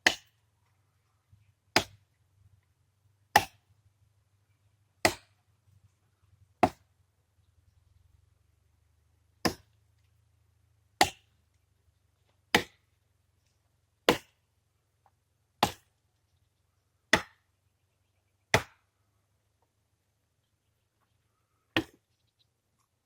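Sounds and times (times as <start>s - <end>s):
tool chopping wood: 0.0s - 0.4s, 1.7s - 2.0s, 3.3s - 3.7s, 5.0s - 5.4s, 6.6s - 6.9s, 9.4s - 9.8s, 11.0s - 11.3s, 12.5s - 12.9s, 14.1s - 14.4s, 15.6s - 15.9s, 17.1s - 17.4s, 18.5s - 18.8s, 21.8s - 22.0s.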